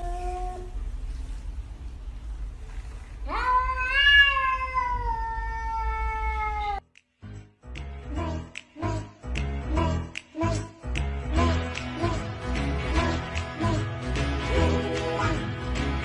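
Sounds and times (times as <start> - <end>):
cat meowing: 3.2 - 6.8
rhythmic music with a beat: 7.0 - 16.0.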